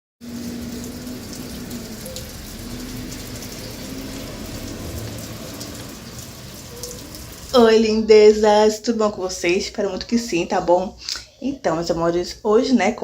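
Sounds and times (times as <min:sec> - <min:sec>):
rain falling: 0:00.2 - 0:08.1.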